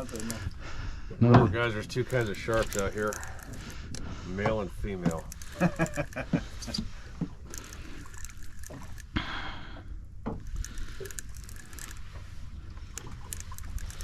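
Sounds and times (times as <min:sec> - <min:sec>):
water sloshing around boat: 0:00.0 - 0:14.0
light clicks: 0:01.8 - 0:09.2, 0:10.3 - 0:14.0.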